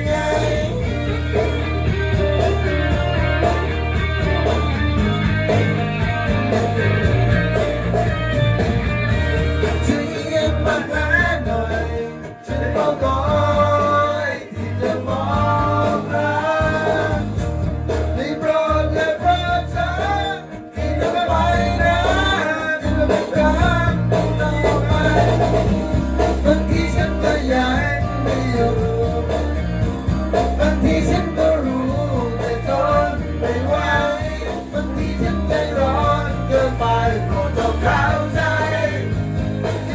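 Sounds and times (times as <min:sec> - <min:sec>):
person singing: 0:00.0 - 0:01.0, 0:09.8 - 0:17.4, 0:18.2 - 0:25.6, 0:26.4 - 0:29.6, 0:30.5 - 0:39.9
instruments with bass line: 0:00.0 - 0:39.9.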